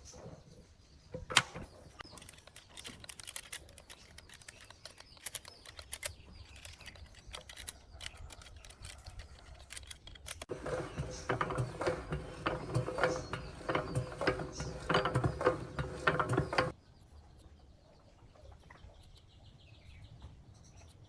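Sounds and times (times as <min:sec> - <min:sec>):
small metal parts clicking: 0:02.0 - 0:10.5.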